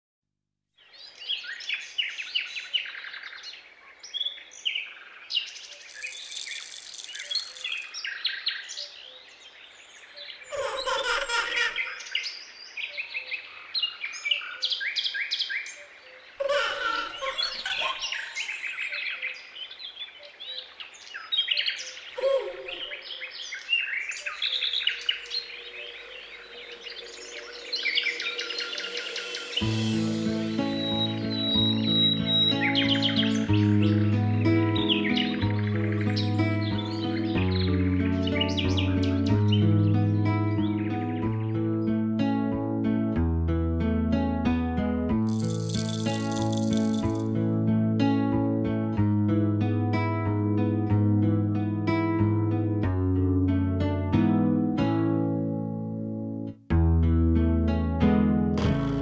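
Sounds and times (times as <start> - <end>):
many birds chirping and singing: 11.6 - 41.4.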